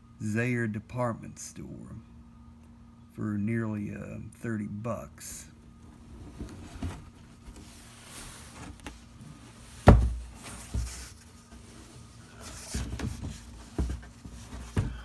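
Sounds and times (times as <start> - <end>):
cardboard box thumping: 6.0 - 15.0.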